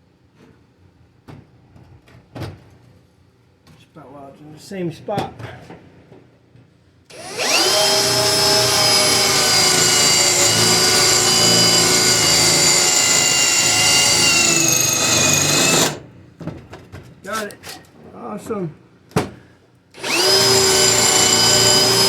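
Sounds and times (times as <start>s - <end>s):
electric drill drilling metal: 7.1s - 16.1s, 20.0s - 22.0s.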